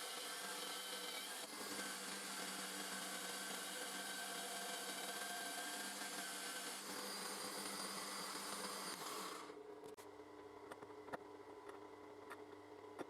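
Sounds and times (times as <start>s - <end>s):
belt grinder motor hum: 0.0s - 9.6s.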